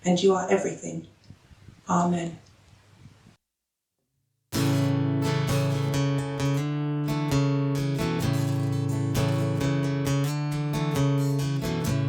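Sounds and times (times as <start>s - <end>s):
acoustic guitar strumming: 4.6s - 12.0s.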